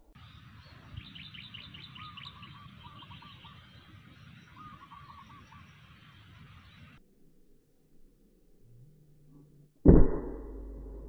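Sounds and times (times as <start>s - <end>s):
high bird chirps: 0.1s - 7.0s
trilled bird call: 0.2s - 7.0s
low steady rumble: 6.4s - 11.0s.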